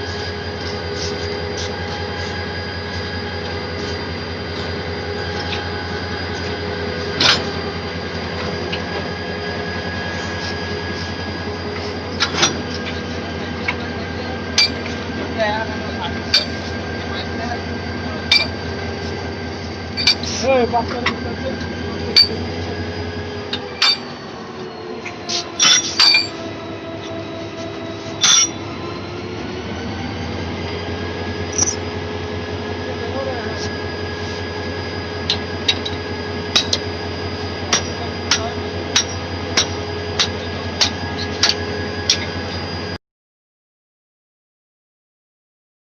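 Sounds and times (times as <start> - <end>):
wheels clacking on rails: 0.0 - 29.0, 30.6 - 42.8
train rumbling on rails: 0.0 - 43.0
loud wheel screech: 25.0 - 26.6.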